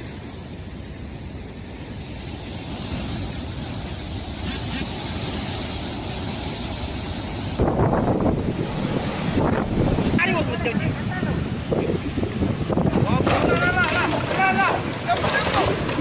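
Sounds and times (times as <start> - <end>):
wind and driving rain: 0.0 - 16.0
wind buffeting microphone: 0.0 - 16.0.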